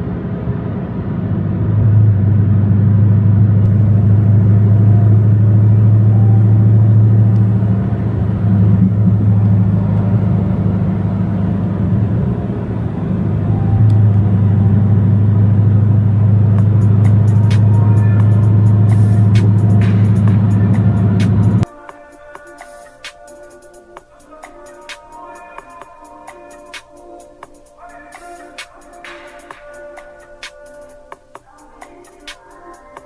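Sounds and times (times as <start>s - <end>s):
car engine rumbling: 0.0s - 21.7s.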